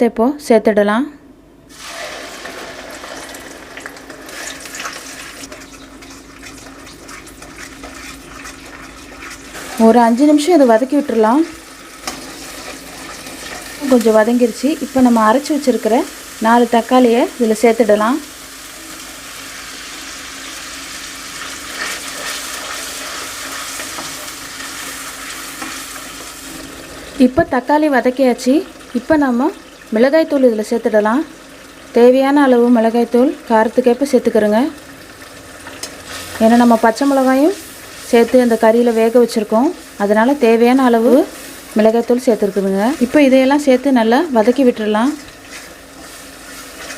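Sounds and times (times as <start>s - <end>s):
onion paste sizzling in hot oil: 1.7s - 46.9s
small clicks in frying: 3.2s - 9.4s, 12.0s - 14.2s, 21.3s - 26.7s, 34.6s - 37.2s, 44.4s - 46.9s.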